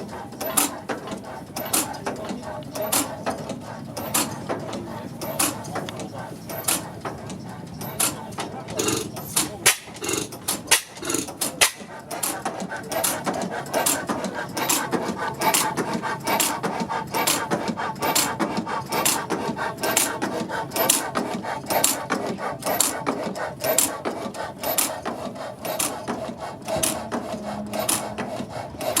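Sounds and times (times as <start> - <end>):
gas engine clacking: 0.0 - 29.0
mechanical rattle: 0.3 - 17.4.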